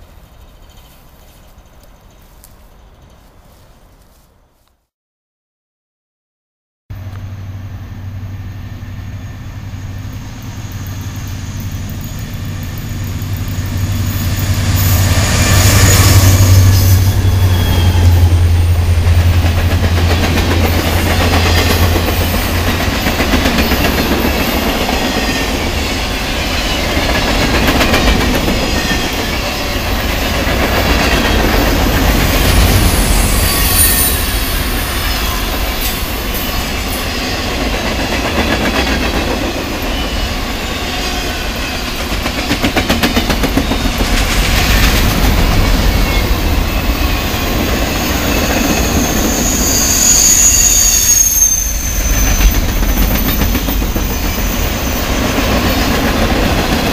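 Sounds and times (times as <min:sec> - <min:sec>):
railcars clickety-clack: 0:00.0 - 0:04.2, 0:07.0 - 0:56.9
locomotive engine drone: 0:06.9 - 0:38.4, 0:43.3 - 0:56.9
high wheel squeal: 0:08.7 - 0:19.2, 0:30.8 - 0:37.6, 0:39.6 - 0:42.5, 0:45.6 - 0:56.3.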